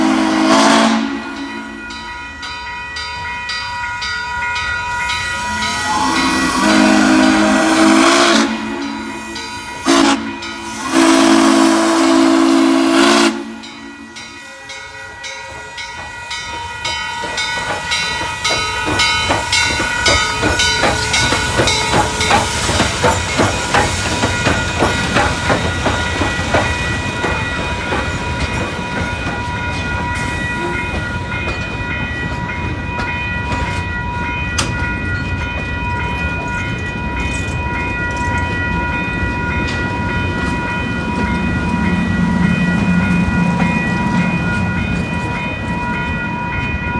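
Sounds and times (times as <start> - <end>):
steam whistle blasts: 0.0 - 1.8, 5.4 - 14.3
steam locomotive chuffing: 0.0 - 46.9
steam hissing: 5.2 - 32.0.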